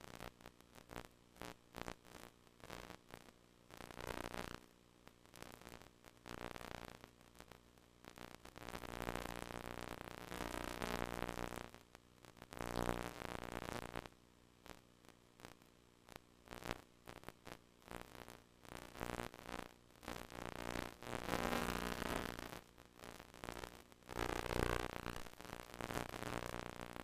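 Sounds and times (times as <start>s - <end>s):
low tape buzz: 0.0s - 27.0s
static clicks and crackles: 0.0s - 27.0s.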